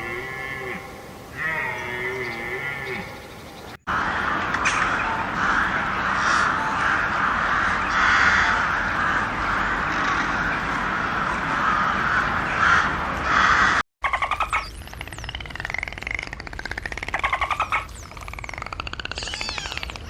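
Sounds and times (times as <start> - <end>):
flock of birds calling: 0.0 - 15.8, 17.1 - 20.0.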